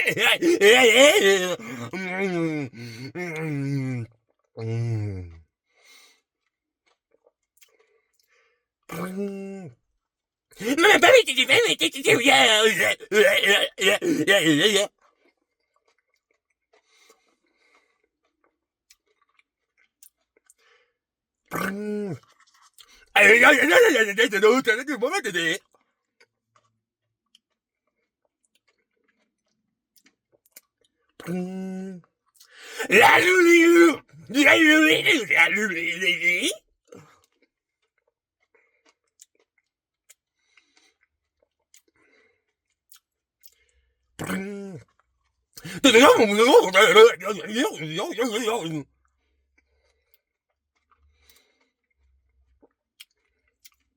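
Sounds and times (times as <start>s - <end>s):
short vocal sound: 0.0s - 5.4s, 10.6s - 14.9s, 23.2s - 25.6s, 32.6s - 36.6s, 45.6s - 48.8s
chewing ice cream: 10.6s - 20.6s, 21.5s - 25.4s, 28.3s - 31.4s, 37.2s - 43.6s, 44.2s - 48.8s, 49.6s - 53.9s
mouth clicks: 44.2s - 44.5s.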